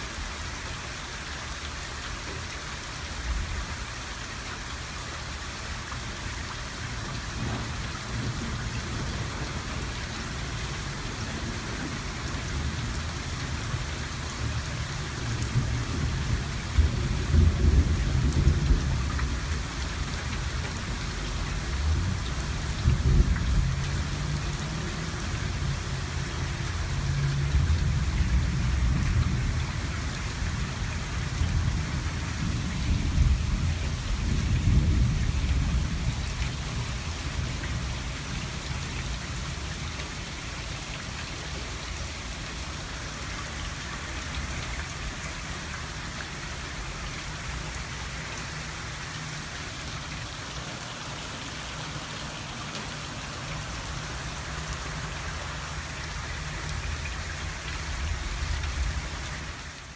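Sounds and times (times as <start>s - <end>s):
steady rain: 0.0s - 59.9s
thunder rumbling: 7.3s - 10.0s, 15.2s - 25.8s, 27.1s - 38.4s.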